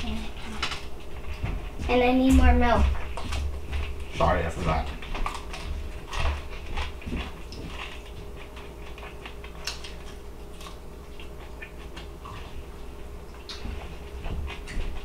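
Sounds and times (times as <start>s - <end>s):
faint steady hum: 0.0s - 15.0s
person chewing crispy food: 3.0s - 15.0s.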